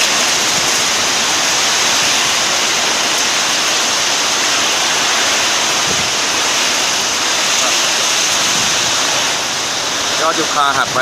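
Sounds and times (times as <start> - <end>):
heavy rain and strong wind: 0.0 - 11.0.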